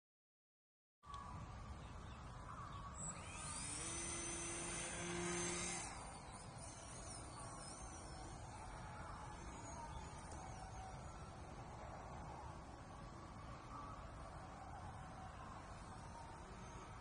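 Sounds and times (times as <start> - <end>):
electric motor whine: 3.0 - 12.6.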